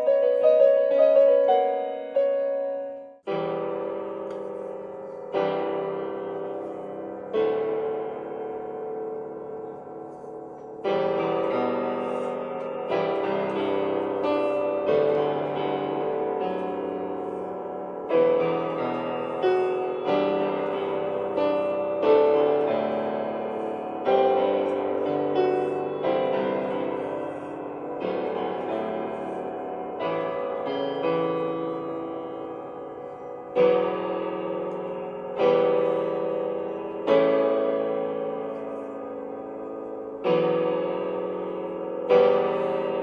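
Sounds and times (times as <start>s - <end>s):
piano chords ringing: 0.0s - 43.0s.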